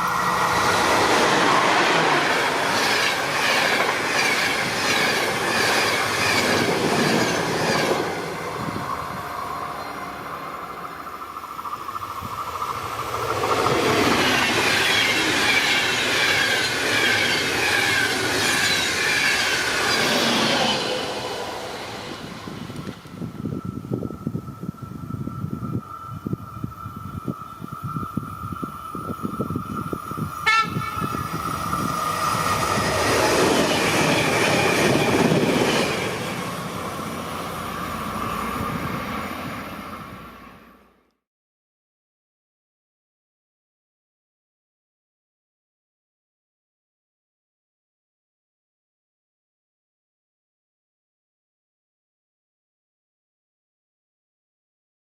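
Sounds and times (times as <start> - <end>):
train rolling on rails: 0.0 - 41.1
high whine: 8.2 - 17.6
train horn blast: 30.4 - 31.2.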